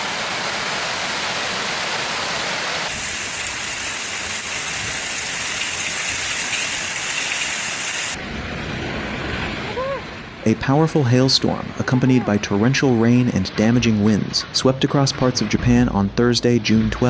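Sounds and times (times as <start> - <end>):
heavy rain pouring: 0.0 - 8.2, 13.4 - 17.0.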